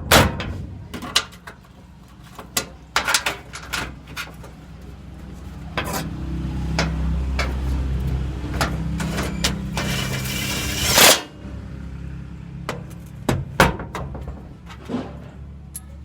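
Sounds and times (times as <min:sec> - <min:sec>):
low engine hum: 0:00.0 - 0:16.0
metal clanks and knocks of tools: 0:00.1 - 0:04.7, 0:05.7 - 0:11.3.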